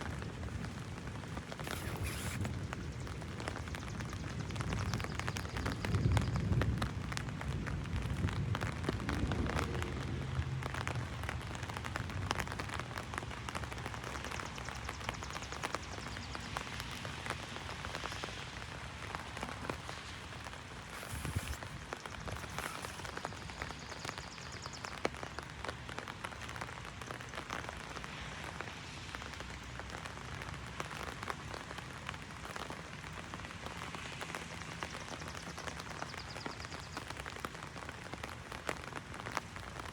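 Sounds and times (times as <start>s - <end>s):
heavy rain on an umbrella: 0.0s - 39.9s.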